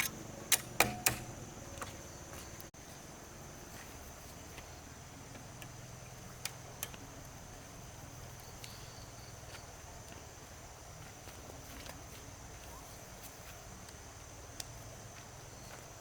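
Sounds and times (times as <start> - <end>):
sharp clicks: 0.0 - 1.3
high insect drone: 0.0 - 16.0.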